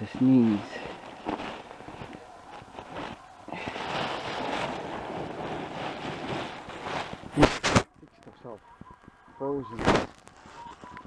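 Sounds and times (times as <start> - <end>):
wood shavings rustling: 0.0 - 7.8.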